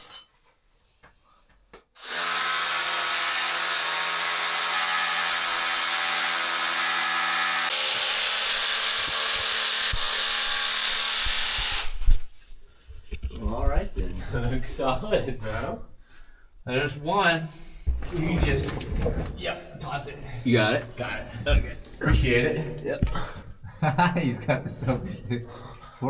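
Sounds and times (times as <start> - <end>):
power drill running: 2.0 - 12.0.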